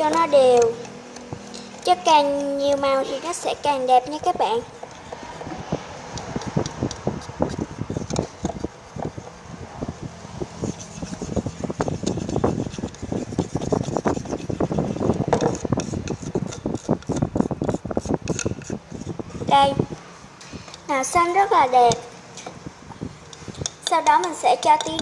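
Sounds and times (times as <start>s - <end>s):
utensil scraping a container: 4.8s - 9.4s, 10.4s - 19.6s, 23.3s - 25.0s.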